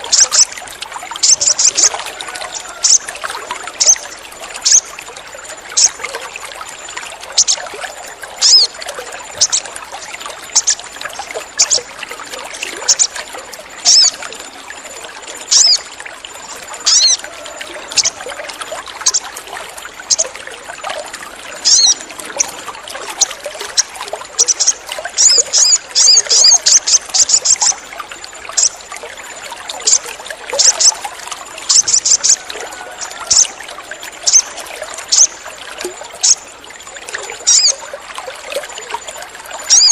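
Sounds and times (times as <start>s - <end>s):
water trickling: 0.0s - 39.9s
bird chirping: 1.2s - 1.9s, 3.8s - 4.0s, 4.6s - 4.9s, 7.4s - 7.7s, 8.4s - 9.7s, 10.5s - 10.9s, 12.9s - 13.2s, 13.8s - 14.2s, 15.5s - 15.8s, 16.8s - 17.2s, 19.0s - 19.2s, 21.6s - 22.0s, 23.8s - 27.8s, 28.6s - 28.8s, 31.7s - 32.4s, 34.2s - 35.4s, 37.5s - 37.8s, 39.7s - 39.9s.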